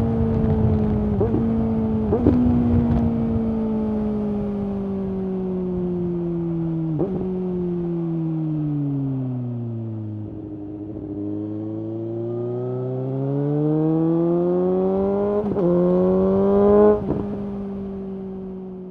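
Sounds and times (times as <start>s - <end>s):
motorcycle engine revving: 0.0s - 4.1s, 10.2s - 18.5s.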